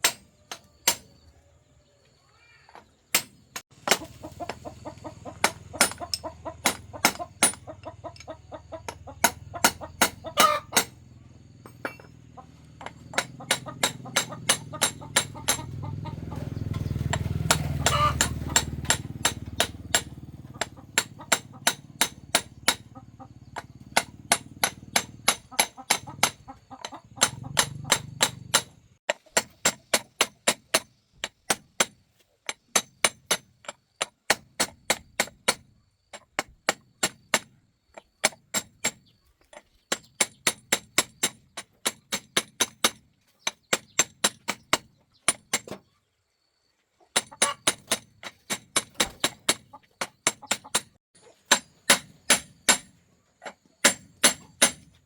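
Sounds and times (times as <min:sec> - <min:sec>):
hammer tapping on metal: 0:05.4 - 0:11.0, 0:12.8 - 0:15.8, 0:17.0 - 0:22.9, 0:23.6 - 0:35.6, 0:47.2 - 0:52.9.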